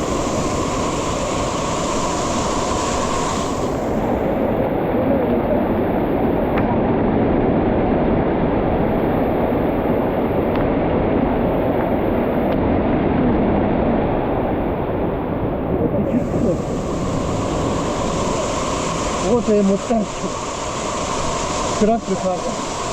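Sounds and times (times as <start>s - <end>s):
waterfall rushing: 0.0s - 6.5s, 16.0s - 22.9s.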